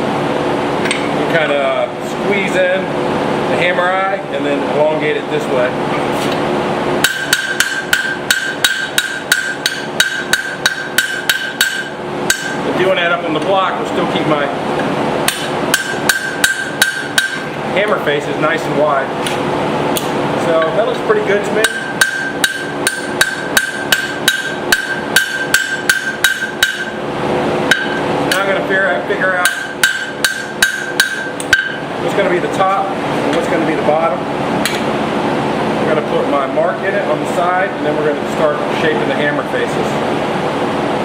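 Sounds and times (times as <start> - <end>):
hammer striking hot steel: 7.0 - 12.6, 15.3 - 17.5, 21.6 - 27.0, 27.7 - 28.5, 29.4 - 31.8.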